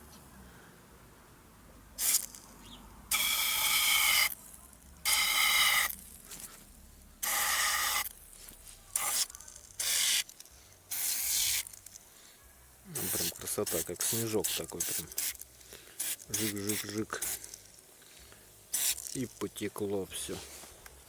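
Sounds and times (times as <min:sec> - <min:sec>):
aerosol can spraying: 0:02.0 - 0:02.4, 0:03.1 - 0:06.5, 0:07.2 - 0:12.0, 0:12.9 - 0:17.9, 0:18.7 - 0:20.9.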